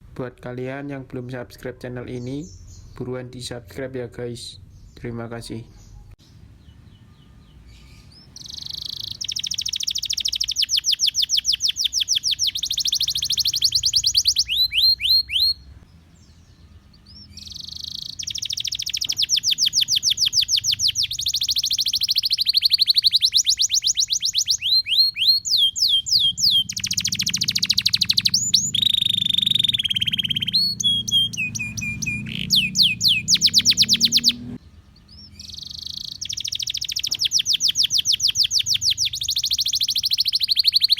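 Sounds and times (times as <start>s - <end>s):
canary singing trills: 1.7s - 3.2s, 4.6s - 40.9s.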